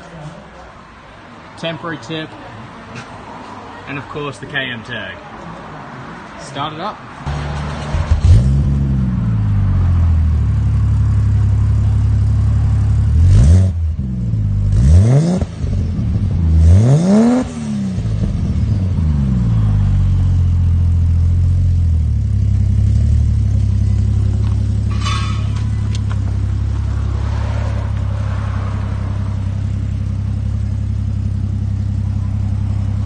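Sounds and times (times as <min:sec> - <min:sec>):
car engine idling and revving: 0:07.2 - 0:33.0.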